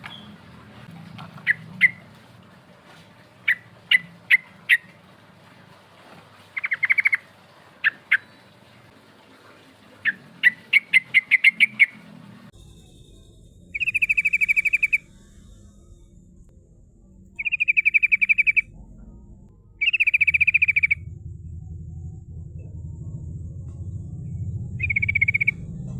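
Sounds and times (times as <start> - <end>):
bird chirping and trilling: 6.6 - 8.5, 10.0 - 12.0, 13.7 - 15.1, 17.4 - 18.8, 19.7 - 21.2, 24.3 - 25.7.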